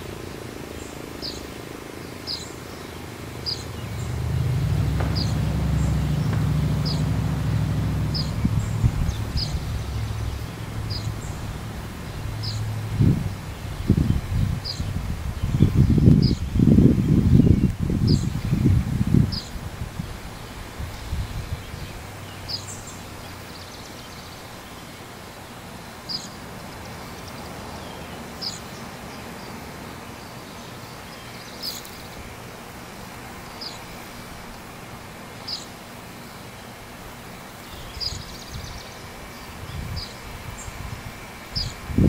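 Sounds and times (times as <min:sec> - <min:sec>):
bird chirping: 0:00.0 - 0:18.7
wind buffeting microphone: 0:00.0 - 0:23.5, 0:37.8 - 0:42.0
leaves and insects hissing: 0:00.0 - 0:42.0.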